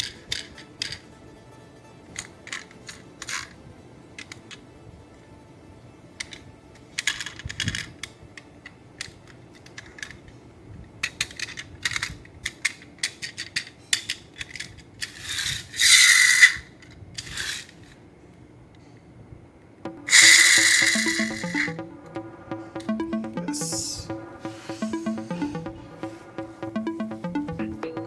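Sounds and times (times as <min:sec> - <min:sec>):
toy vehicles clicking and clinking: 0:02.2 - 0:03.6, 0:07.0 - 0:08.1, 0:09.0 - 0:10.2, 0:11.0 - 0:16.6, 0:17.2 - 0:17.7.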